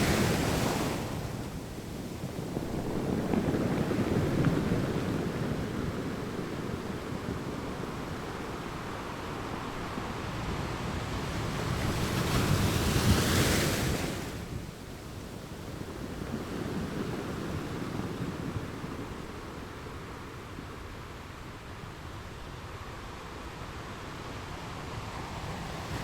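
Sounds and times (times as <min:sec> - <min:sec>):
wind on microphone: 0:00.0 - 0:20.3
low rumble of surf: 0:00.0 - 0:26.0.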